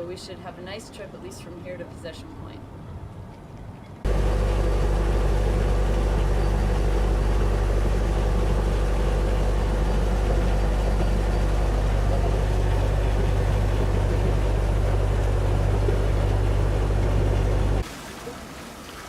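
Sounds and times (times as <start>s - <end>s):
boat engine running steadily: 4.0s - 17.8s.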